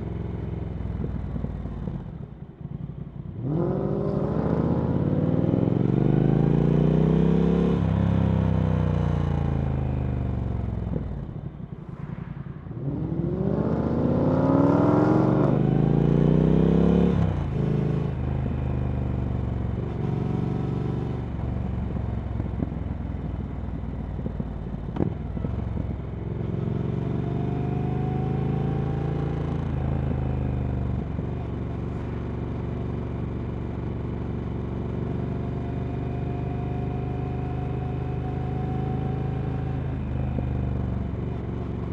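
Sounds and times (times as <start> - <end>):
motorcycle engine accelerating: 0.0 - 22.9.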